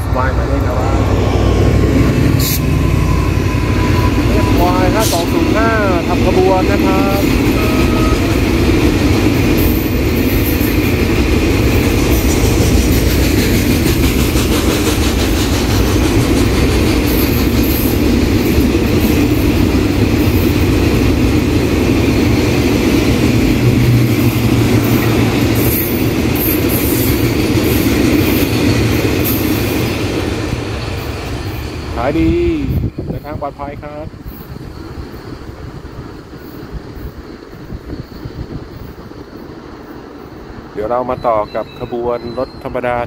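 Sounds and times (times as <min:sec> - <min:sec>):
steel wheels rumbling on rails: 0:00.0 - 0:43.0.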